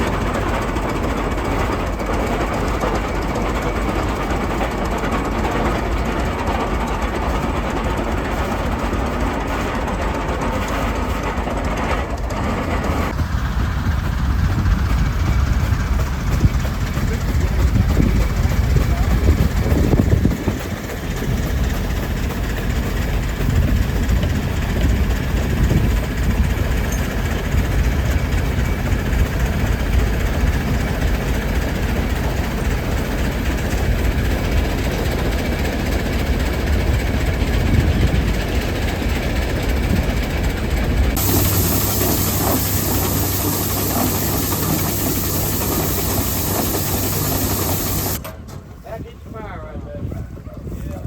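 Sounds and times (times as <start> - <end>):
steam traction engine clatter: 0.0 - 51.0
steam tractor low hum: 0.0 - 51.0
steam hissing: 41.1 - 48.2.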